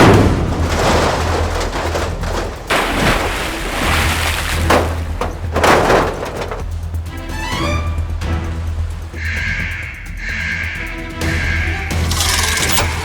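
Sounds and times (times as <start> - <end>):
cartoon heavy thuds and booms: 0.0 - 6.6.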